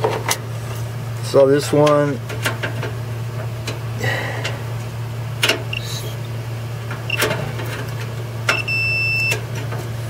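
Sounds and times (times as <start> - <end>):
steady low hum: 0.0 - 10.0
multimeter continuity beep: 8.5 - 9.4.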